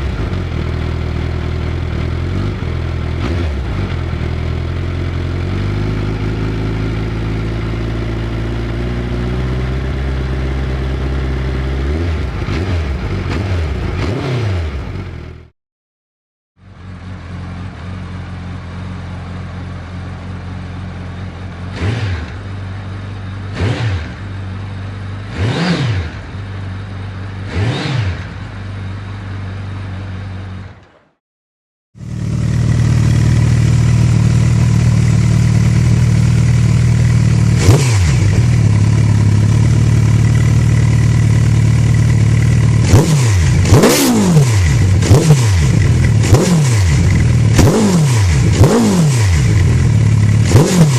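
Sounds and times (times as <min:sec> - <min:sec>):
louder exhaust revving: 0:00.0 - 0:15.2, 0:21.7 - 0:22.8, 0:23.4 - 0:24.4, 0:25.2 - 0:26.5, 0:27.3 - 0:28.6, 0:32.0 - 0:50.9
motorcycle engine idling and revving: 0:00.0 - 0:15.5, 0:16.6 - 0:31.2, 0:32.0 - 0:50.9.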